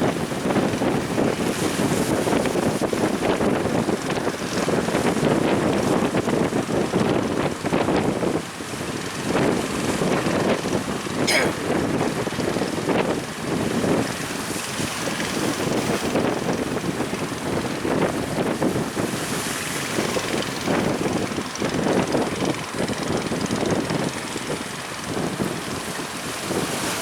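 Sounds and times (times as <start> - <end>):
wind buffeting microphone: 0.0 - 27.0
sea waves: 13.3 - 21.9, 22.6 - 27.0.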